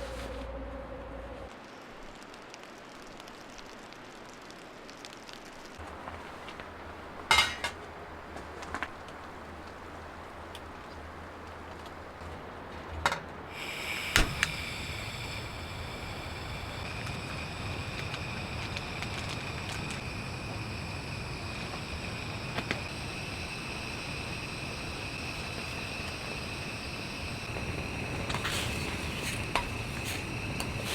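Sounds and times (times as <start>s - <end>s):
high-pitched whine: 0.0s - 1.6s
low hiss: 13.4s - 30.9s.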